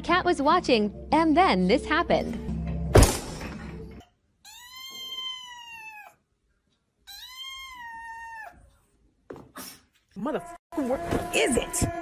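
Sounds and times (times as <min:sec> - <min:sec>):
kitten meowing: 0:04.5 - 0:06.2, 0:07.1 - 0:08.6.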